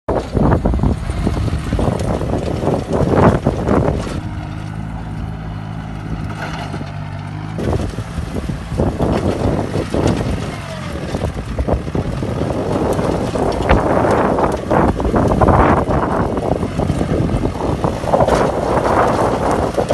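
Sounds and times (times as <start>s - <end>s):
rough irregular noise: 0.1s - 19.9s
tractor diesel engine humming: 0.1s - 19.9s.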